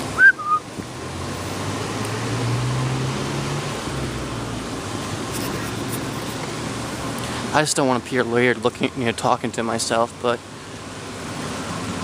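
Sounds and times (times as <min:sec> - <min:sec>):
short high chirp: 0:00.2 - 0:00.6.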